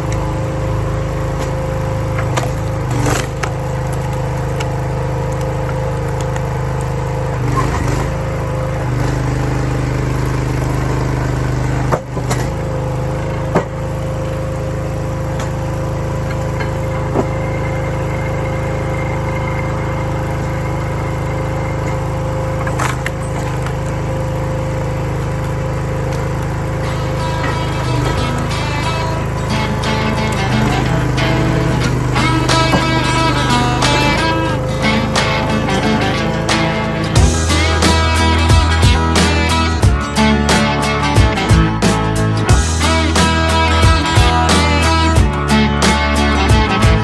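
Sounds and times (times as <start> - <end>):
small gas engine running: 0.0 - 47.0
wood splitting cracks: 1.2 - 14.5, 22.4 - 28.6.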